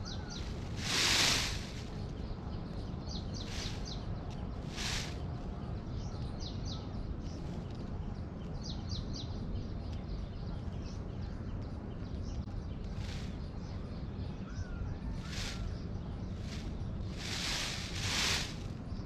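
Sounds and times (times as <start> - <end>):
high bird chirps: 0.0 - 5.3
harsh bird calls: 0.0 - 7.4, 12.3 - 19.0
steady low rumble: 0.0 - 19.0.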